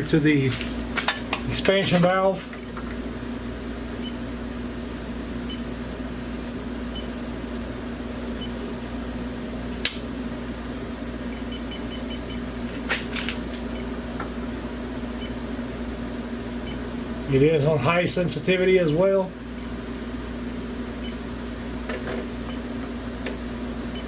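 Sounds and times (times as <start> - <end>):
steady hum: 0.0 - 24.0
leak detector ticking and beeping: 4.0 - 4.2, 5.5 - 5.7, 6.9 - 7.2, 11.3 - 12.5, 13.7 - 14.0, 16.6 - 16.8.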